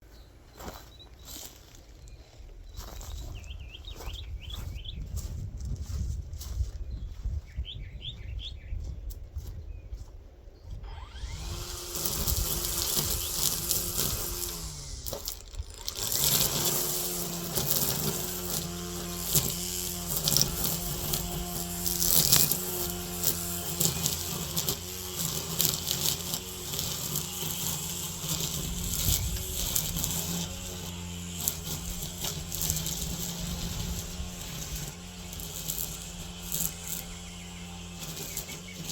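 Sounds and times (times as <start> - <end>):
string trimmer motor buzzing: 10.8 - 38.9.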